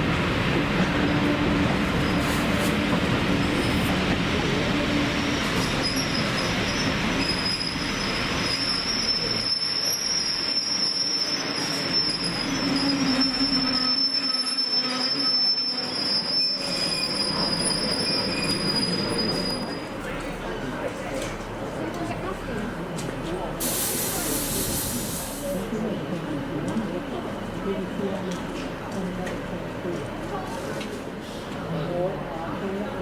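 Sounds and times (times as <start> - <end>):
rumble of passing train: 0.0 - 33.0
train wheels squealing on rails: 0.8 - 20.3.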